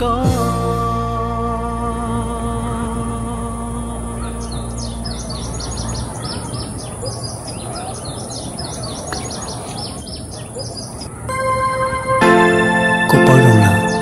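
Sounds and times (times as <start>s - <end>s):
music with sustained keyboard tones: 0.0s - 6.8s, 11.2s - 14.0s
steady high hiss: 0.0s - 7.6s
birds chirping: 1.6s - 14.0s.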